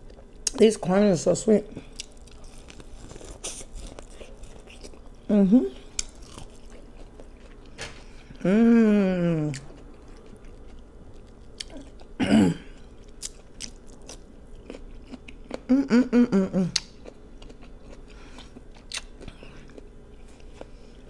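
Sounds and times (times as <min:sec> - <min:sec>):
person chewing food: 0:00.0 - 0:00.6, 0:01.7 - 0:08.5, 0:09.3 - 0:16.0, 0:16.6 - 0:21.0
person humming: 0:08.4 - 0:09.7, 0:15.7 - 0:16.8.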